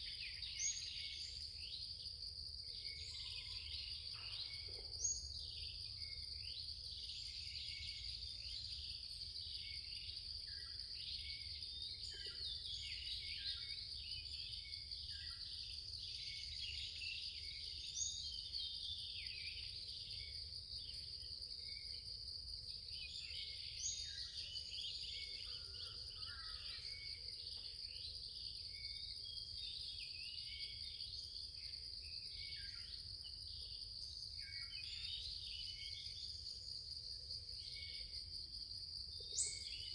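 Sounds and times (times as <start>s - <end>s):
small birds chirping: 39.2s - 39.9s.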